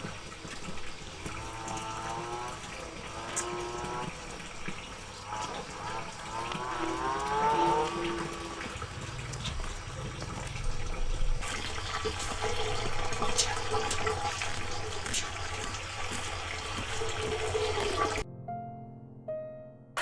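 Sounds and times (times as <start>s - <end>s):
water running and splashing: 0.0s - 18.2s.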